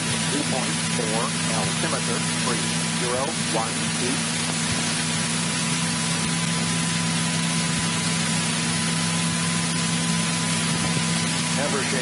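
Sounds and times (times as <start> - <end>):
radio and intercom hiss: 0.1 - 4.3.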